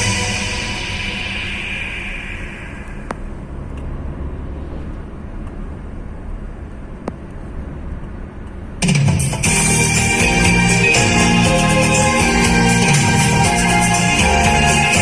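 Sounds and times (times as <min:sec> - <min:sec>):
song playing: 0:00.0 - 0:03.1, 0:09.0 - 0:15.0
car road and engine rumble: 0:00.0 - 0:15.0.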